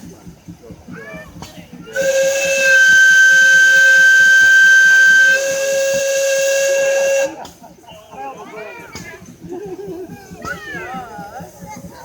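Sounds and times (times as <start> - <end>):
steam whistle blast: 2.0 - 7.4.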